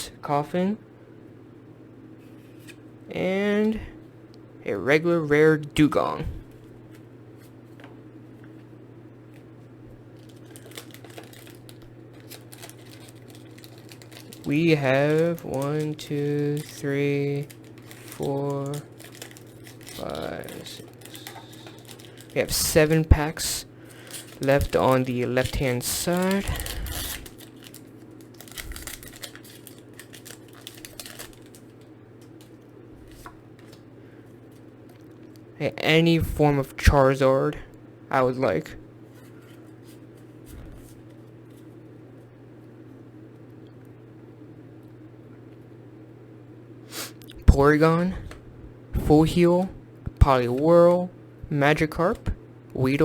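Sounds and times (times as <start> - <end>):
low electrical hum: 0.0 - 53.0
foil pack tearing and crinkling: 10.2 - 31.8
trading cards clicking and rustling: 10.2 - 33.8.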